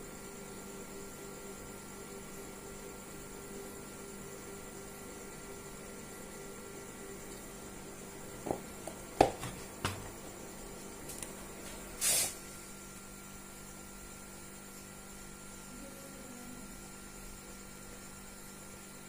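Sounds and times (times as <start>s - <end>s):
faint electrical hum: 0.0s - 19.0s
brief hiss: 12.0s - 12.4s.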